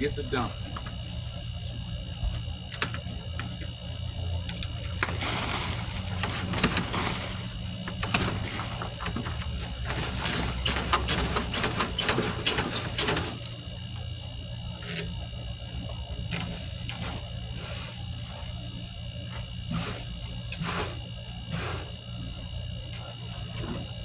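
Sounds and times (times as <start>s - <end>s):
soil rustling and scraping: 4.8s - 13.6s, 16.3s - 18.6s, 19.3s - 22.0s.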